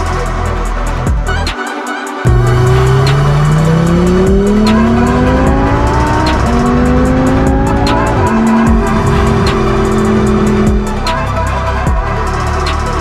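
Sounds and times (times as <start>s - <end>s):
music beat: 0.0s - 13.0s
car engine accelerating: 2.3s - 11.8s.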